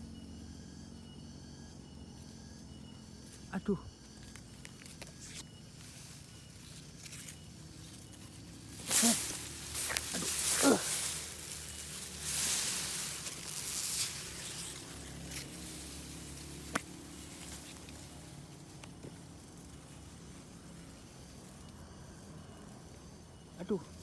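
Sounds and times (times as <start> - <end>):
rustling grass and leaves: 2.1 - 24.0.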